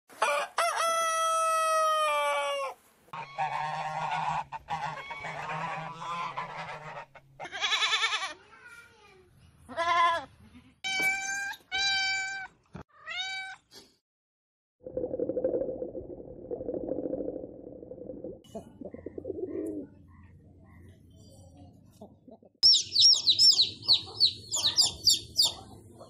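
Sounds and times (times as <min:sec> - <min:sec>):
rooster crowing: 0:00.2 - 0:02.8
cat meowing: 0:10.9 - 0:13.6.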